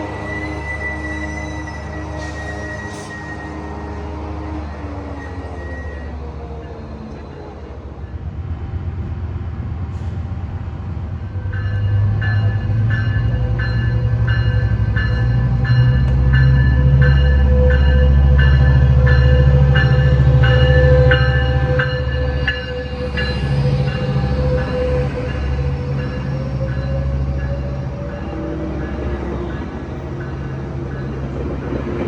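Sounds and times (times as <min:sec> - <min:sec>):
diesel locomotive rumbling: 0:00.0 - 0:32.0
locomotive bell ringing: 0:11.4 - 0:31.4.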